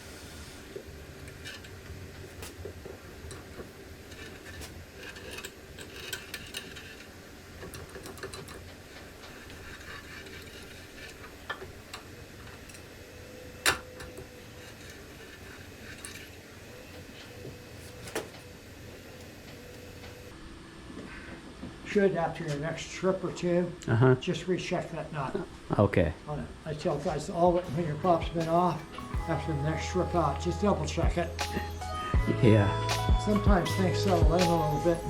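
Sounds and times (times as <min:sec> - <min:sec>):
metal tools clicking and tapping: 0:03.2 - 0:08.7.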